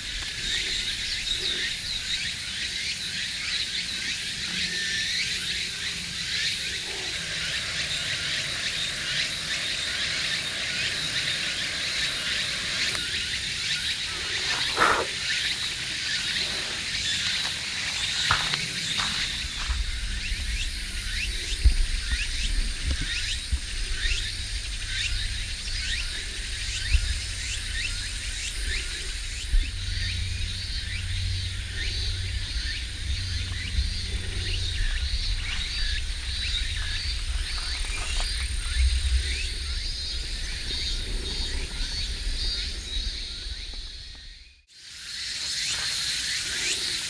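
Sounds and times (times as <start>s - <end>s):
steady high whine: 5.6s - 44.7s
low rumble: 16.1s - 44.6s.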